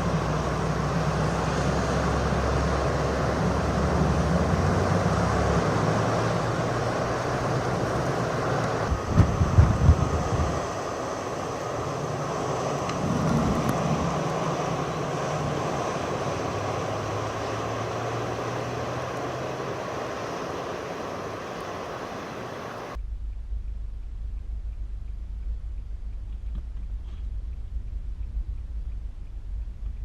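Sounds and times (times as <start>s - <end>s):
strong wind gusting: 0.0s - 30.0s
low rumble: 12.8s - 15.6s, 22.9s - 30.0s.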